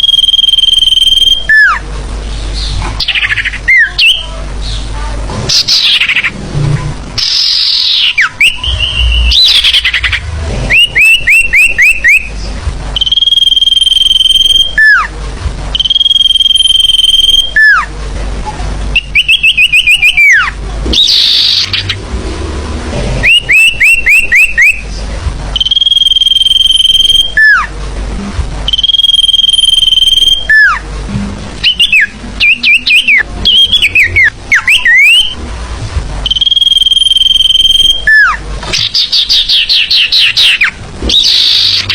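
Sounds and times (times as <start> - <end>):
forest birds calling: 7.2 - 13.2
long falling whistles: 25.6 - 27.6, 36.3 - 38.3.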